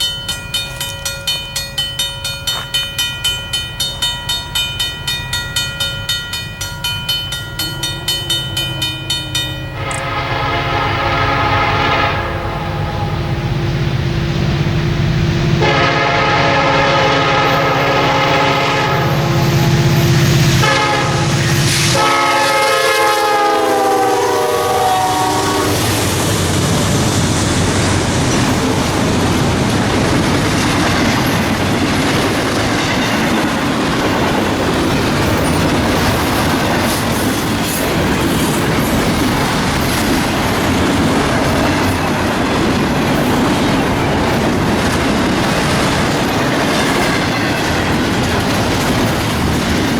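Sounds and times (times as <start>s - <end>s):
locomotive horn chord: 7.6s - 13.6s, 15.4s - 26.1s
train wheels clattering over rail joints: 26.1s - 49.9s.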